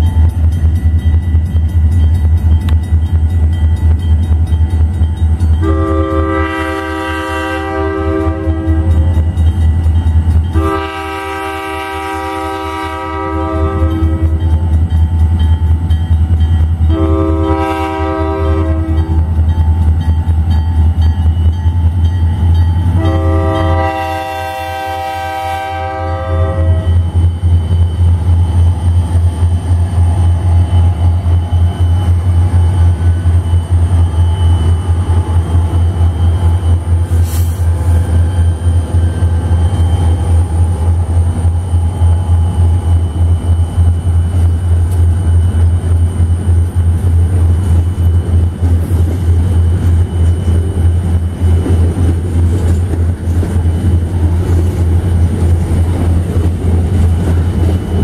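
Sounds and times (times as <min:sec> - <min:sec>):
freight train rumbling past: 0:00.0 - 0:58.0
train horn chord: 0:05.6 - 0:09.2, 0:10.5 - 0:14.4, 0:16.9 - 0:19.2, 0:22.9 - 0:27.1.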